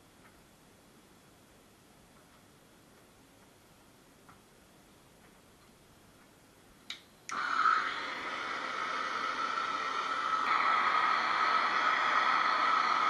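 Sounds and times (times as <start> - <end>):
torch flame hissing: 7.3 - 13.0.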